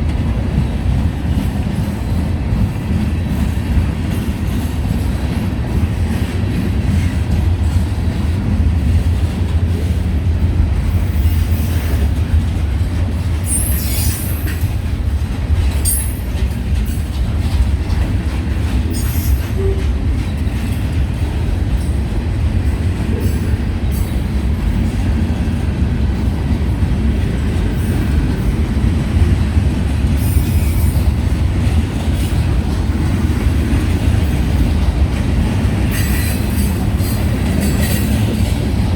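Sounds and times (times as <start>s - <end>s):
train wheels rumbling on rail: 0.0s - 38.9s
high-pitched wheel squeals: 13.5s - 14.5s.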